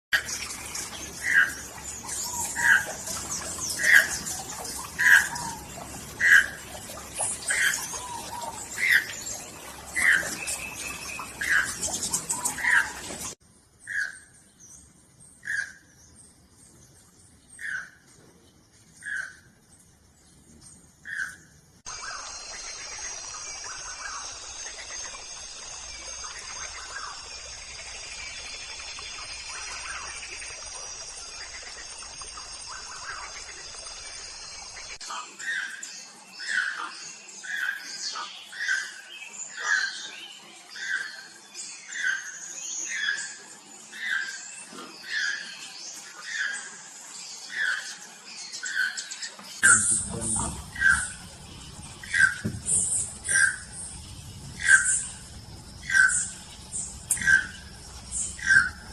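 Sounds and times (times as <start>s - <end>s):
birds calling: 0.2s - 14.4s, 47.4s - 58.9s
birds chirping and trilling: 0.2s - 58.9s
high-pitched outdoor hiss: 19.6s - 35.2s, 48.2s - 58.9s.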